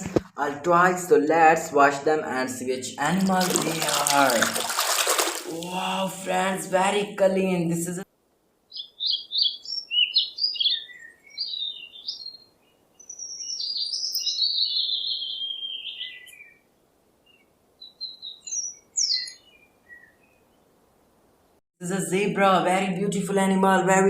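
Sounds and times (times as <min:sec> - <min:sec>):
bird warbling phrase: 0:05.5 - 0:08.0
small birds chirping: 0:08.7 - 0:20.6.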